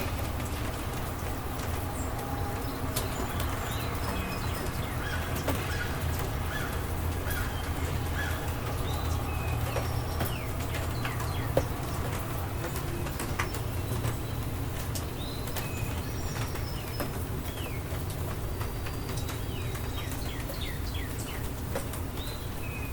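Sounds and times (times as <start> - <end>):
birds chirping: 0.0 - 22.9
low rain rumble: 0.0 - 22.9
rain drips and patter: 0.0 - 22.9.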